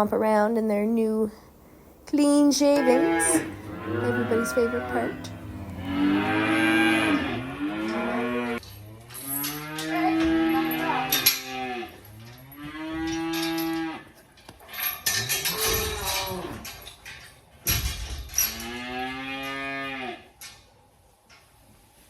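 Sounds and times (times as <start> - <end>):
cows mooing: 2.6 - 14.2, 15.0 - 16.9, 18.4 - 20.3.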